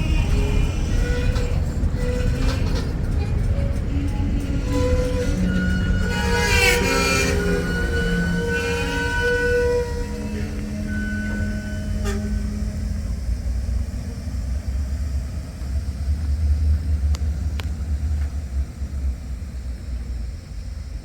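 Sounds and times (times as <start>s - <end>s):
train whistle: 0.0s - 14.6s
model train motor rumbling: 0.0s - 21.0s.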